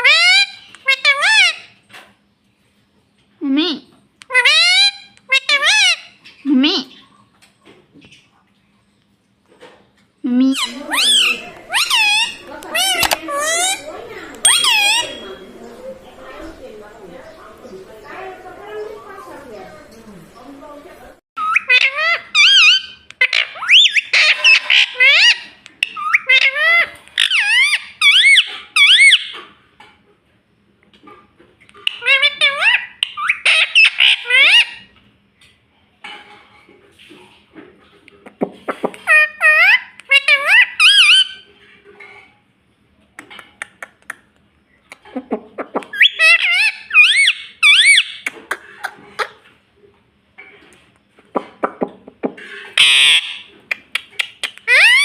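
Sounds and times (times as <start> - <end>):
parrot squawking and chattering: 0.0 - 1.8, 4.2 - 7.0, 10.4 - 29.4, 31.8 - 34.9, 38.6 - 41.5, 44.9 - 49.5, 51.4 - 55.0
parakeet warbling whistles: 10.6 - 15.6, 45.9 - 48.2
parakeet clicks: 53.7 - 54.8.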